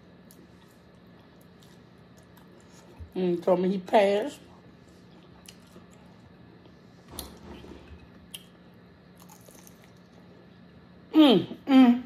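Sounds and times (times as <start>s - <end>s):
low steady hum: 0.0s - 12.0s
chewing and biting chicken wing: 9.2s - 10.3s.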